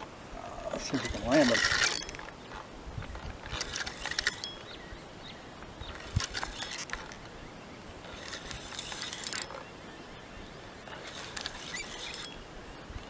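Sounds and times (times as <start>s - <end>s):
fishing reel clicking: 0.9s - 4.8s, 5.9s - 7.3s, 8.0s - 9.6s, 10.9s - 12.5s.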